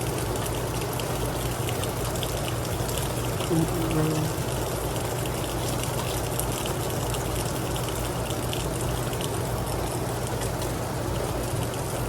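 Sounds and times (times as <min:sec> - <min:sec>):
heavy rain hissing: 0:03.4 - 0:04.7
steady low hum: 0:03.4 - 0:04.7.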